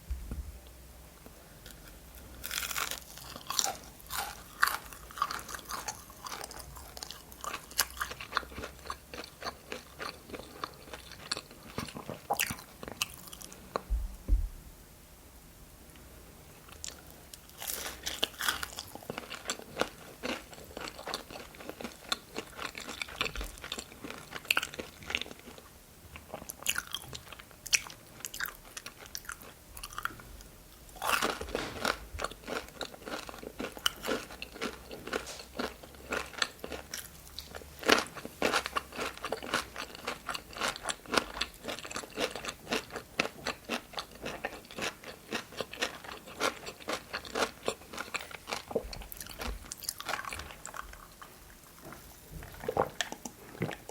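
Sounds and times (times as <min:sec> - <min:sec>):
crunchy chewing: 0:01.6 - 0:13.9, 0:16.7 - 0:53.9.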